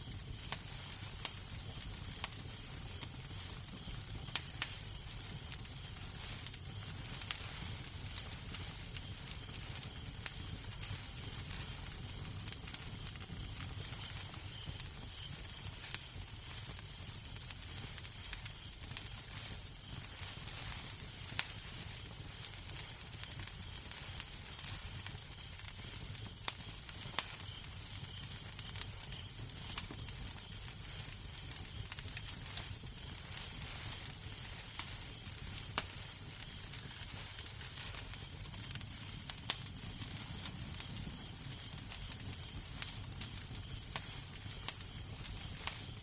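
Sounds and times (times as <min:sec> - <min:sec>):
wood fire crackling: 0:00.0 - 0:46.0
sharp pops and snaps: 0:39.5 - 0:40.5.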